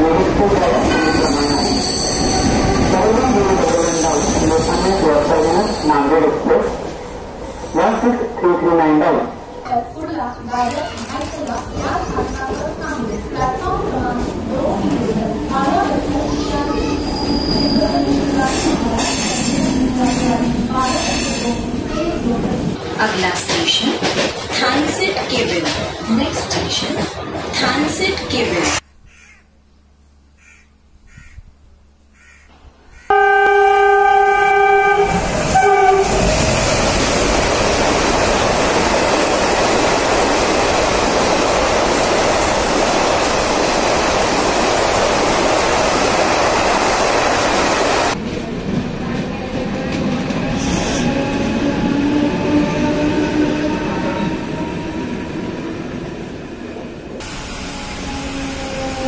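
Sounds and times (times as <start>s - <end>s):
train rushing and rattling: 0.0s - 28.9s, 32.9s - 59.0s
train horn blast: 33.1s - 36.3s.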